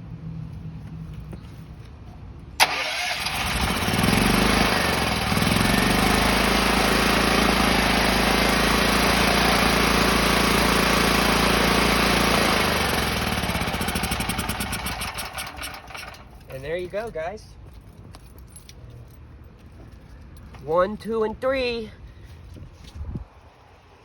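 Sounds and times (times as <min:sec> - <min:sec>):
generator engine running: 0:02.6 - 0:16.5.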